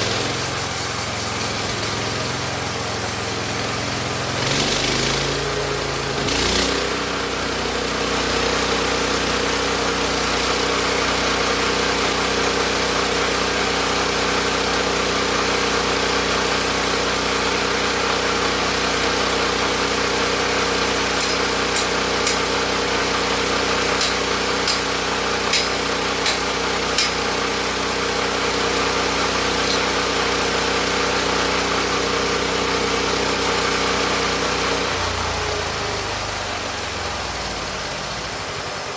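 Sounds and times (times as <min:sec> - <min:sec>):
small gas engine running: 0:00.0 - 0:38.9
sharp clicks: 0:21.2 - 0:22.6, 0:23.8 - 0:27.3.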